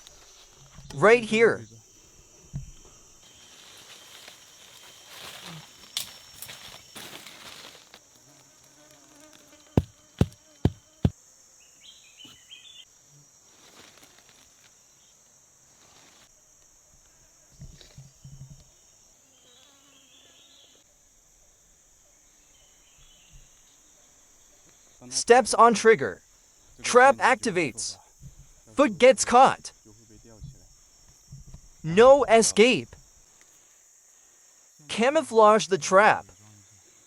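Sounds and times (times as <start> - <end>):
high-pitched insect drone: 0.0 - 15.4
sharp knocks: 9.8 - 11.1.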